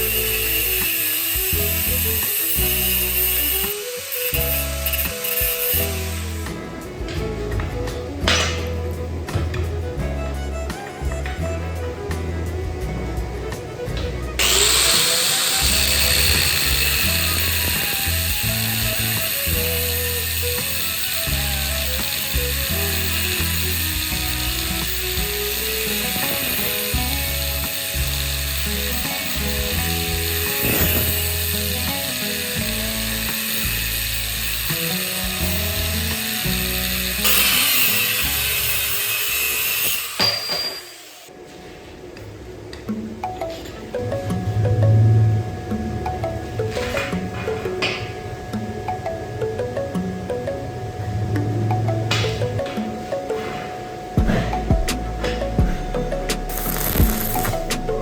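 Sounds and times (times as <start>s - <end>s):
hiss: 0.0s - 6.6s, 14.4s - 41.3s
power tool working metal: 0.0s - 7.0s, 13.8s - 41.3s, 54.2s - 58.0s
background music: 0.0s - 40.6s, 41.3s - 58.0s
metal mechanism ratcheting: 14.4s - 41.0s.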